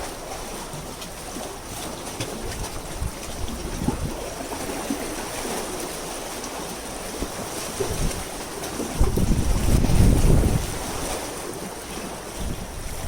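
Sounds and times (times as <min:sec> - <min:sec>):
sea water washing: 0:00.0 - 0:13.0
wind buffeting microphone: 0:02.3 - 0:05.0, 0:07.1 - 0:13.0.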